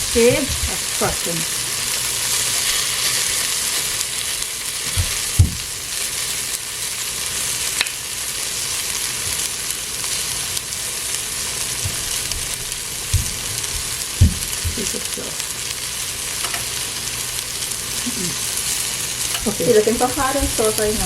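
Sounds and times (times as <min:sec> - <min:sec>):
okra sizzling in oil: 0:00.0 - 0:21.0
dull knocks: 0:04.9 - 0:05.7, 0:13.1 - 0:14.9.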